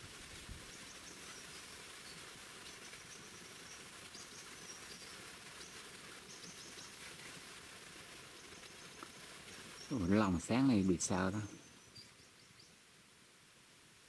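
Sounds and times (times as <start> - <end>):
faint outdoor hiss: 0.0 - 14.0
small bird chirping: 0.7 - 7.0, 8.4 - 12.8.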